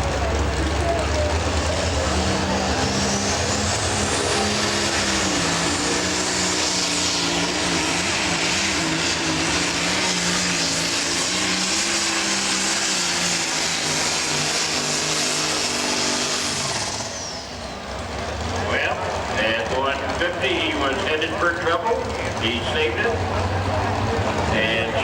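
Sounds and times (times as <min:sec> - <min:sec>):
diesel tractor engine under load: 0:00.0 - 0:25.0.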